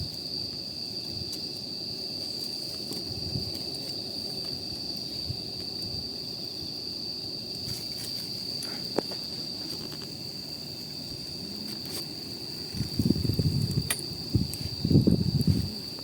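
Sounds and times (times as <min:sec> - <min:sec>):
campfire crackling: 0:00.0 - 0:16.0
insect trill: 0:00.0 - 0:16.0.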